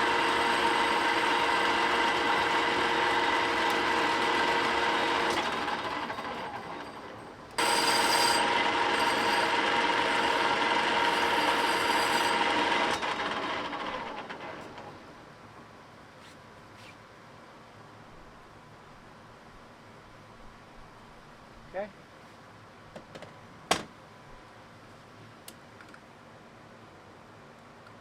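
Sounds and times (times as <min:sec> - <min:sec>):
machine tool cutting metal: 0:00.0 - 0:15.0.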